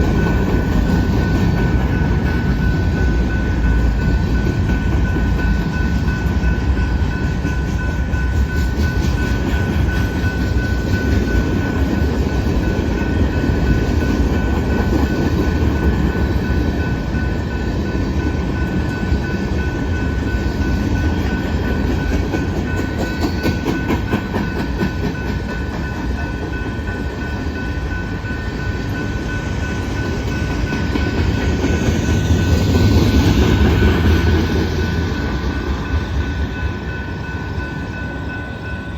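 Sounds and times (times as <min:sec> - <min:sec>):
train rumbling past: 0:00.0 - 0:38.9
high-pitched ring: 0:34.8 - 0:38.9.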